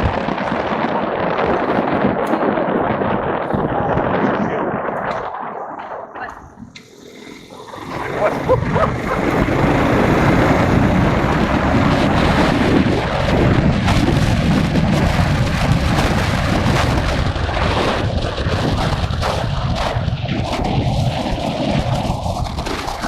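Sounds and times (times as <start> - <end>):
wind buffeting microphone: 0.0 - 23.0
motorcycle engine running: 6.3 - 20.1.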